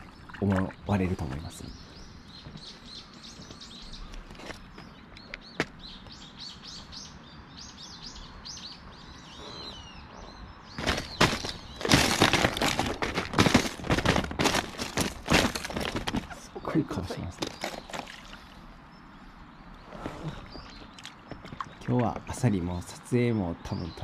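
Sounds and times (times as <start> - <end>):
small birds chirping: 0.0 - 24.0
loud irregular crackles: 10.8 - 16.5.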